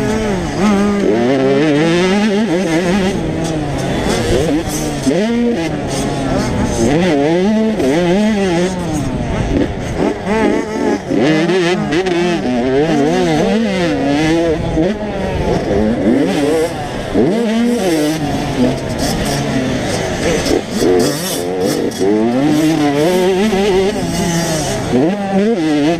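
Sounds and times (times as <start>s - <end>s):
motocross bike engines revving: 0.0s - 25.9s.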